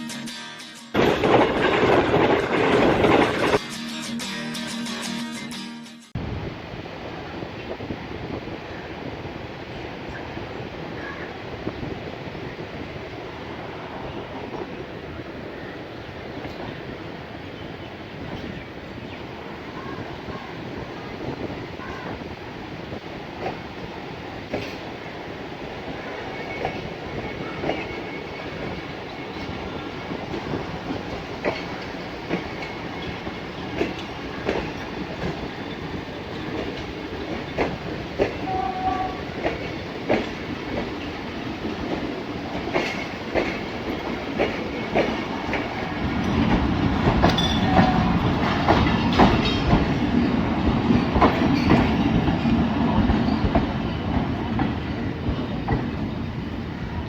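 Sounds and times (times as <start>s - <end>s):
train rumble: 0.9s - 3.6s, 6.2s - 57.0s
train wheels clickety-clack: 1.0s - 3.6s, 16.3s - 17.1s, 19.5s - 57.0s.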